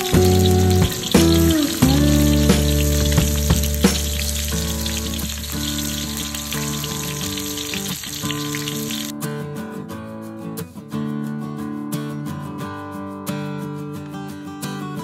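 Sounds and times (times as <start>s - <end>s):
background music: 0.0s - 9.0s
food sizzling in hot oil: 0.0s - 9.1s.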